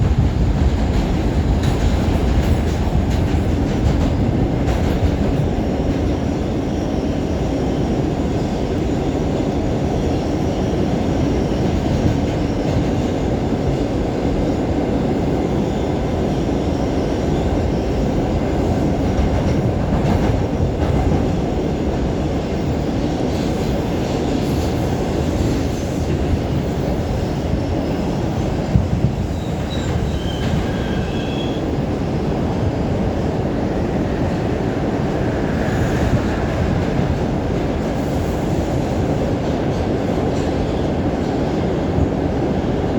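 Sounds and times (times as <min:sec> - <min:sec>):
subway train wheels rumbling: 0:00.0 - 0:42.9
faint high squeals: 0:29.3 - 0:31.7.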